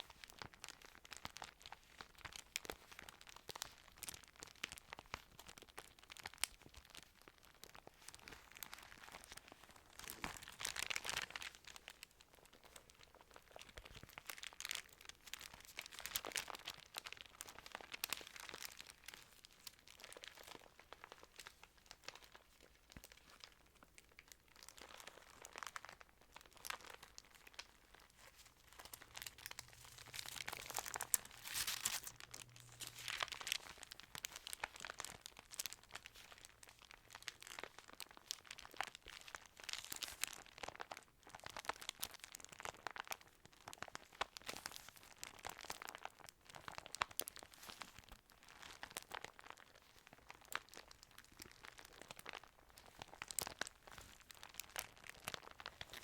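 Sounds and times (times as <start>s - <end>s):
paper pages rustling: 28.2s - 34.4s.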